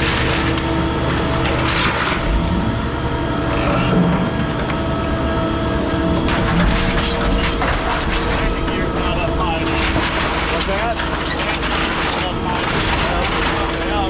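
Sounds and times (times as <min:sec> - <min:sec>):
baler motor humming: 0:05.2 - 0:13.7
scrap metal crunching: 0:05.8 - 0:14.0.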